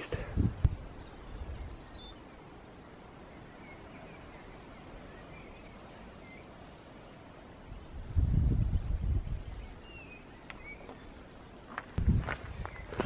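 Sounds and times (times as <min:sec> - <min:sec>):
wind buffeting microphone: 0:00.1 - 0:02.2, 0:07.5 - 0:13.0
faint bird chirps: 0:00.1 - 0:07.8.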